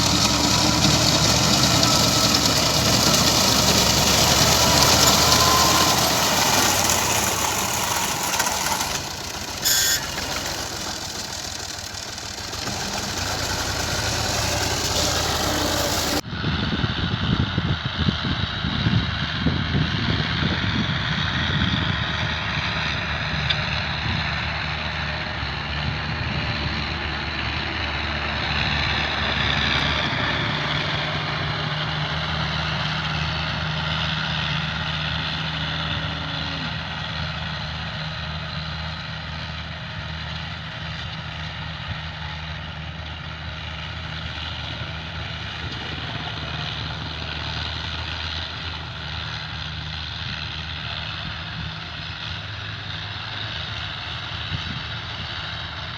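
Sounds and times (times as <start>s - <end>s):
high-pitched machine whine: 0.0s - 16.2s
tractor engine running: 0.0s - 16.3s, 18.9s - 55.9s.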